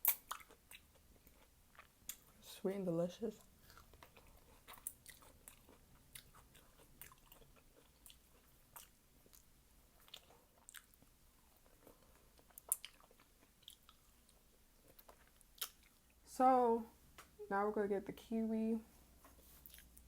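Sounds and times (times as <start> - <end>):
chewing fruit mouth clicks: 3.6 - 11.0, 11.6 - 14.1, 14.9 - 16.0.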